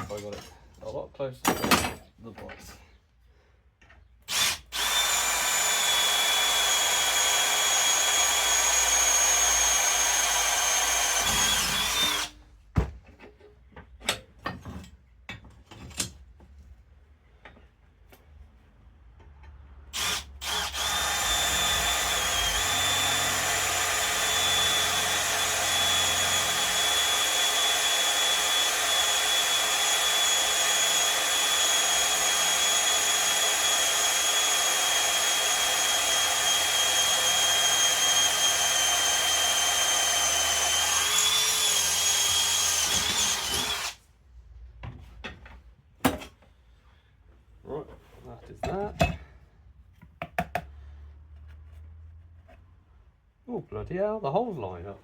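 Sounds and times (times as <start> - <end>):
electric drill boring metal: 4.3 - 12.4, 20.0 - 44.0.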